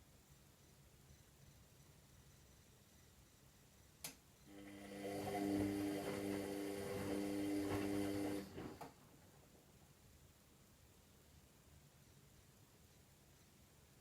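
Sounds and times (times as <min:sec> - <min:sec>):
drum motor humming: 0:04.5 - 0:08.8.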